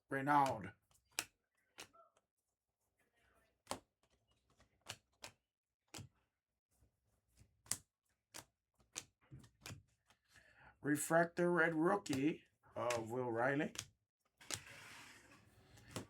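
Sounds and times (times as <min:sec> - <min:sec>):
trading cards clicking and flipping: 0:00.3 - 0:02.3, 0:03.6 - 0:06.1, 0:07.2 - 0:10.4, 0:11.1 - 0:16.0.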